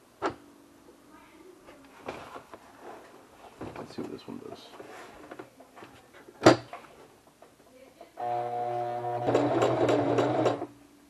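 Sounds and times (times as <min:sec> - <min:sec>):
sewing machine running: 0:08.2 - 0:10.7.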